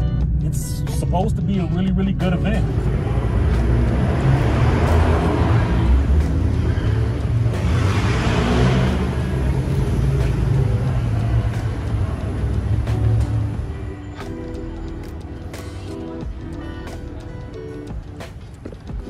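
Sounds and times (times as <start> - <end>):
car engines rumbling: 0.0 - 19.0
car exhaust revving: 2.6 - 13.8.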